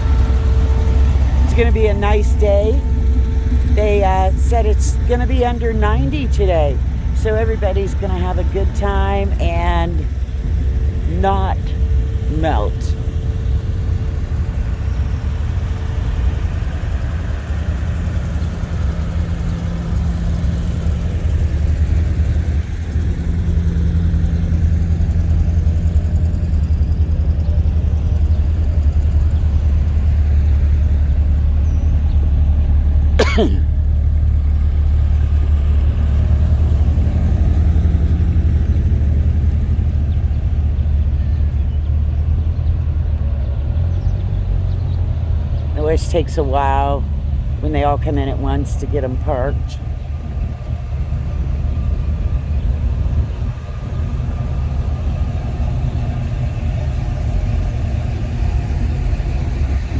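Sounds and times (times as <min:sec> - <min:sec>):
car engines rumbling: 0:00.0 - 0:59.9.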